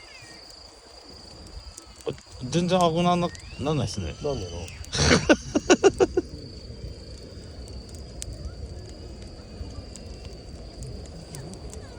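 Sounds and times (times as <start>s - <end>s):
campfire burning: 0.0s - 11.9s
crickets trilling: 0.0s - 11.9s
people laughing: 4.9s - 6.3s.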